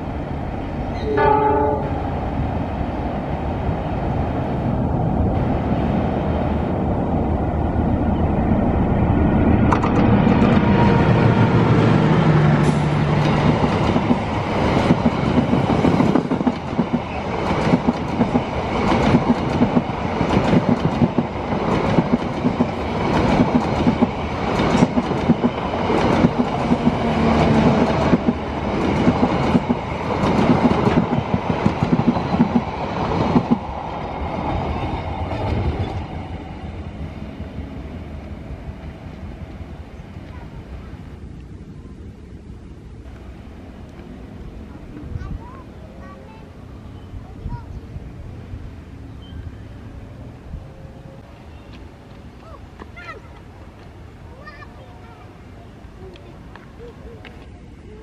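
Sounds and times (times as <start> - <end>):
locomotive engine hum: 0.0 - 58.0
train wheels clickety-clack: 9.7 - 11.1, 12.4 - 36.5.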